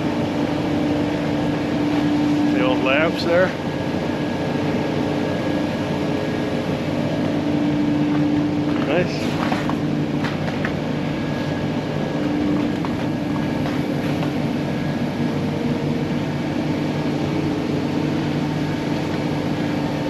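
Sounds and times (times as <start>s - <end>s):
ship machinery hum: 0.0s - 20.0s.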